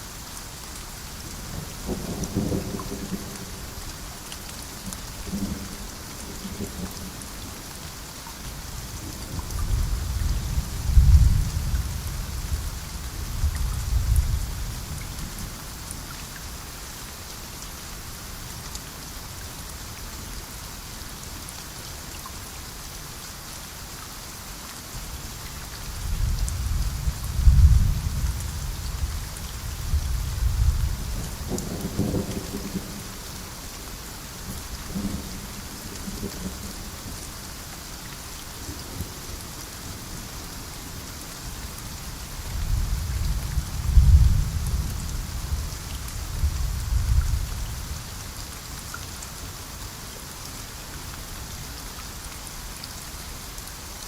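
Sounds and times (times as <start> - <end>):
heavy rain falling: 0.0 - 54.0
rolling thunder: 26.2 - 29.2, 42.6 - 45.7.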